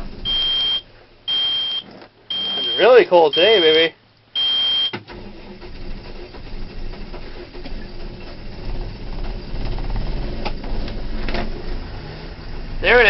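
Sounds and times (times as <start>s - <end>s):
diesel engine cranking: 0.0s - 3.7s, 4.8s - 13.0s
engine firing: 5.0s - 13.0s.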